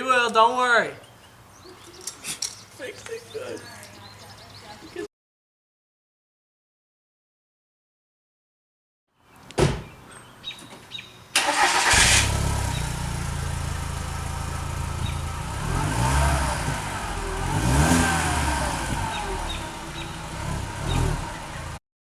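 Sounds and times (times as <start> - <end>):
car engine starting and idling: 11.4 - 21.8
short engine revs: 11.4 - 21.8.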